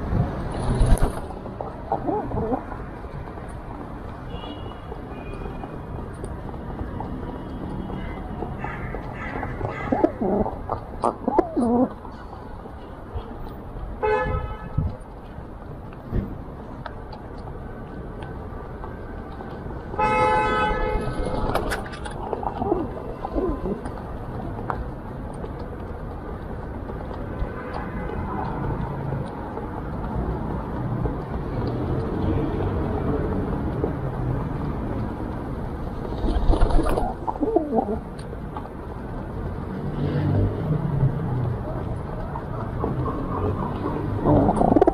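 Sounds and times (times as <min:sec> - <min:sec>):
city traffic hum: 0:00.0 - 0:44.9
pigeons cooing: 0:01.9 - 0:02.7, 0:08.6 - 0:12.0, 0:22.4 - 0:23.9, 0:36.7 - 0:38.1, 0:44.2 - 0:44.9
car horn toot: 0:20.0 - 0:21.0.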